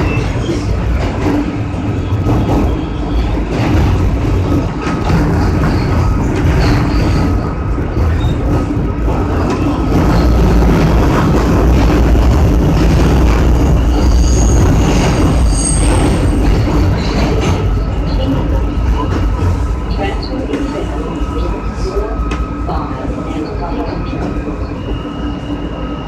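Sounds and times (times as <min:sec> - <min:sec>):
subway wheels rumbling on track: 0:00.0 - 0:26.0.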